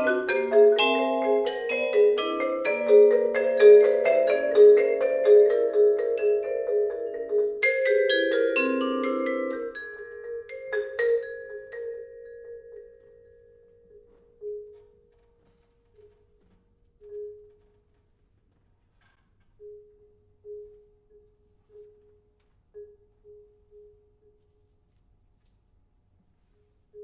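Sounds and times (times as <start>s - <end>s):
vibraphone and marimbas playing: 0.0s - 15.2s.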